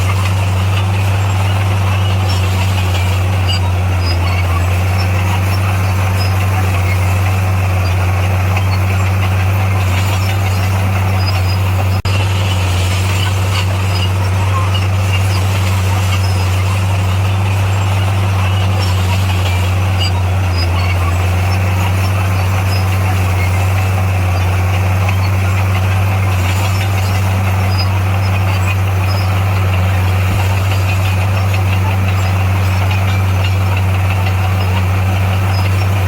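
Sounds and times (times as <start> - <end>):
bulldozer diesel engine running: 0.0 - 36.0.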